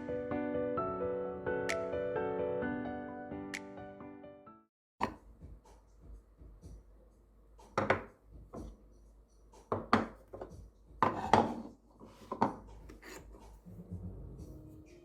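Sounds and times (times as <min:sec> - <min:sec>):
light scraping and rubbing: 0:11.0 - 0:13.7.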